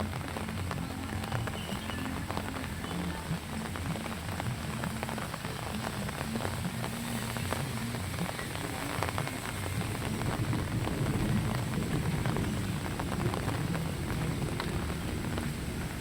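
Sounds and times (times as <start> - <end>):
rain drop ticks: 0.0 - 16.0
rain hiss: 0.0 - 16.0
low rumble: 9.8 - 16.0.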